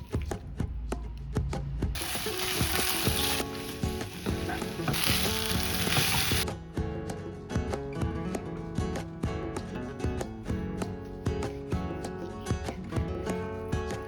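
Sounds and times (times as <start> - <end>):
guitar background music: 0.0 - 14.0
stir-fry sizzling in oil: 2.0 - 6.4.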